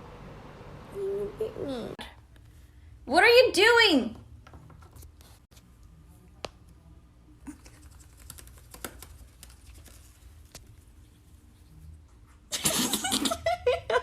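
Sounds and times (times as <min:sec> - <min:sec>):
low steady hum: 0:00.0 - 0:03.2.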